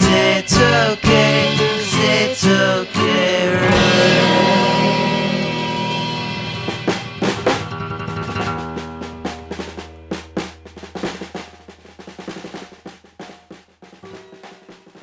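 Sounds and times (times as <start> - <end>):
held final chord ringing: 0.0 - 8.1
pop-rock band playing: 0.0 - 11.4
drum hits: 0.0 - 15.0.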